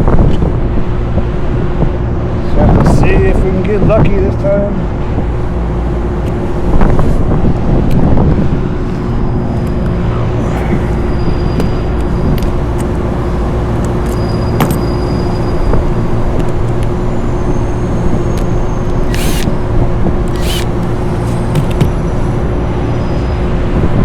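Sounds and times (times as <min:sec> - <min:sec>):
machinery drone: 0:08.7 - 0:13.8, 0:18.6 - 0:23.0.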